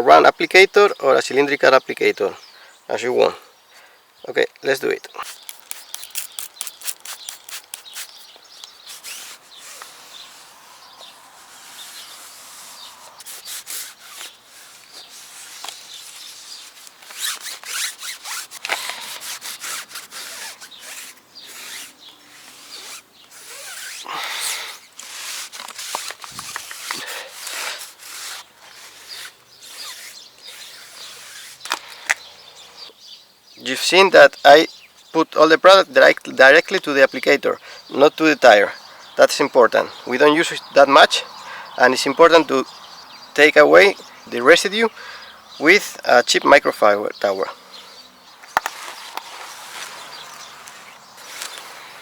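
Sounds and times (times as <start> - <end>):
foam pad scrubbing tire: 5.2 - 31.6.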